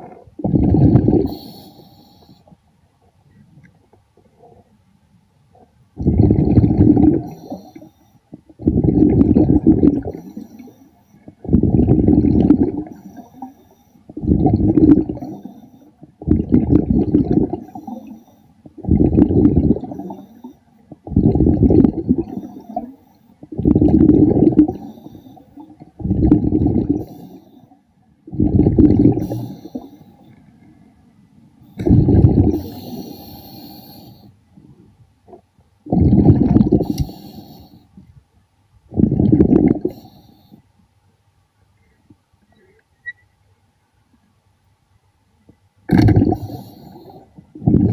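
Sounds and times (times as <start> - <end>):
underwater breath bubbles: 0.0 - 2.5, 6.0 - 30.8, 31.6 - 34.8, 35.9 - 38.1, 38.9 - 40.6, 45.9 - 47.9.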